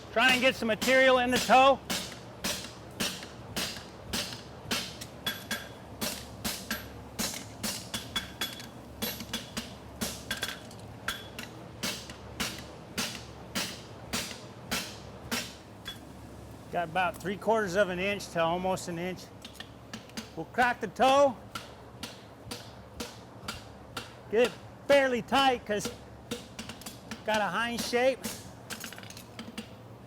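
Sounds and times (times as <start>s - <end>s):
cooling fan hum: 0.0s - 30.0s
hammer striking steel on anvil: 0.2s - 16.0s, 19.5s - 24.7s, 25.8s - 28.5s.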